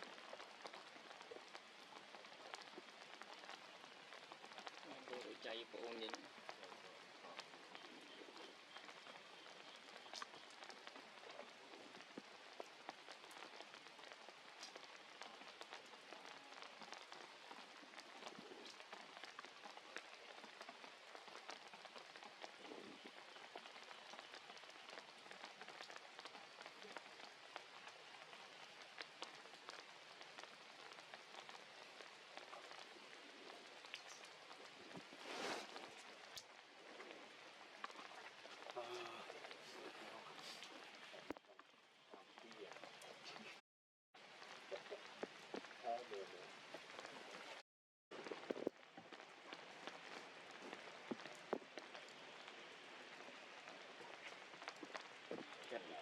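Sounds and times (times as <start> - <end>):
faint rain falling: 0.0 - 43.6, 44.2 - 56.0.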